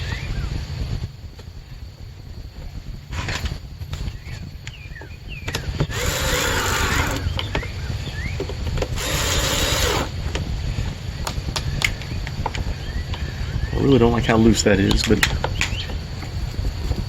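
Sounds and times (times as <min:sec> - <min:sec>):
cordless drill driving screws: 0:05.9 - 0:07.4, 0:09.0 - 0:10.2.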